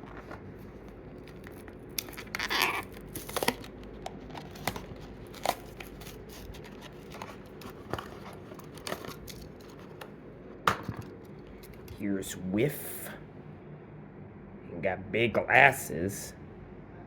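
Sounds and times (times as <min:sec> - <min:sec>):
packaging crinkling and tearing: 0:00.0 - 0:10.1.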